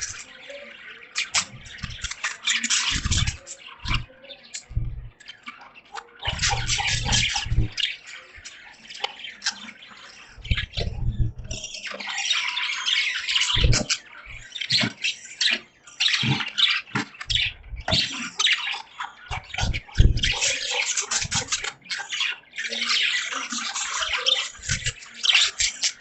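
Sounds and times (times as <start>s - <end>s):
budgies chattering: 0.0s - 26.0s
low thumps: 2.9s - 4.1s, 4.7s - 5.2s, 6.3s - 7.8s, 10.4s - 11.6s, 13.6s - 14.5s, 17.3s - 18.0s, 19.3s - 20.3s.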